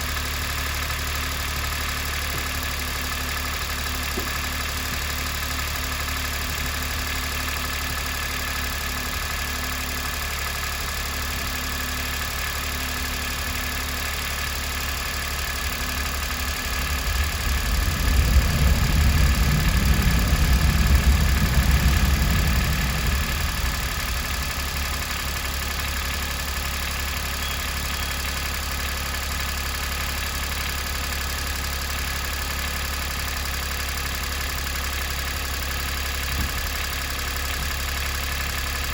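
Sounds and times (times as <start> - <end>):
engine idling: 0.0 - 38.9
low rumble: 14.1 - 31.1.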